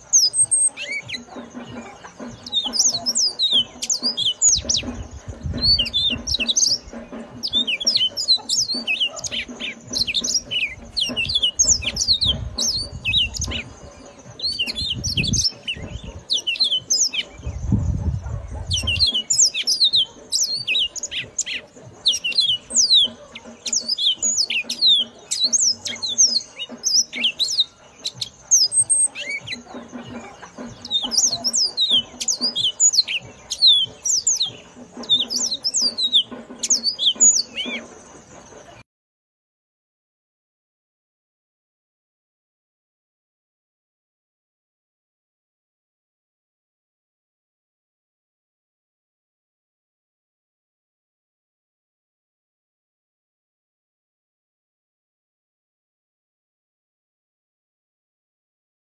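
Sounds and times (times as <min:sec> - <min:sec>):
canary twittering song: 0:00.0 - 0:38.8.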